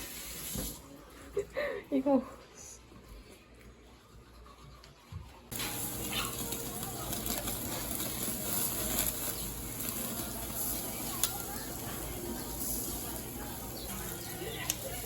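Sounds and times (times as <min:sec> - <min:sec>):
food sizzling in a pan: 0:00.0 - 0:00.9, 0:05.5 - 0:15.0.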